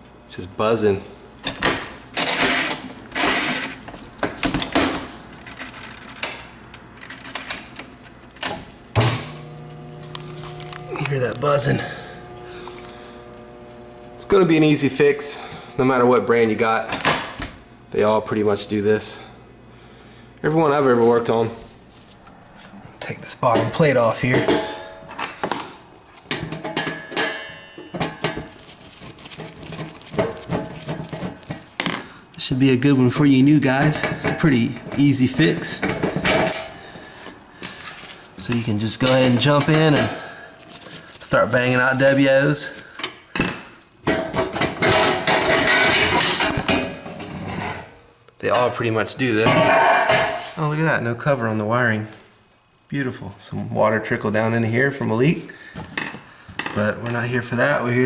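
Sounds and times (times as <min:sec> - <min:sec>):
metal clanks and knocks: 0:23.5 - 0:25.6, 0:26.3 - 0:28.6, 0:43.4 - 0:48.0, 0:49.5 - 0:50.4
dishwasher rattling: 0:44.1 - 0:47.9, 0:49.5 - 0:50.4.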